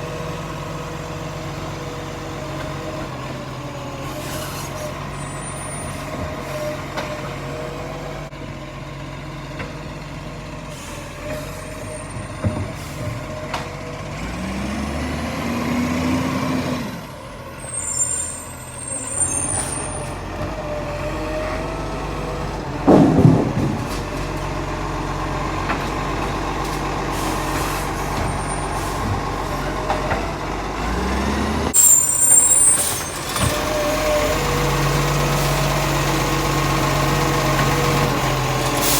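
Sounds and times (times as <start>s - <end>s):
truck engine running and revving: 0.0s - 38.9s
high-pitched squeals: 31.7s - 33.5s.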